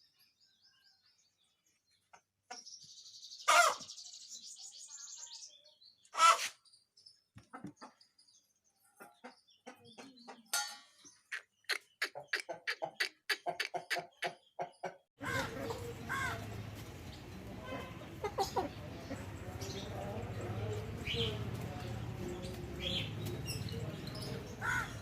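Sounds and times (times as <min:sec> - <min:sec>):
chicken call: 0:06.2 - 0:06.6
chicken clucking: 0:07.4 - 0:08.2, 0:08.8 - 0:16.9, 0:17.5 - 0:22.5.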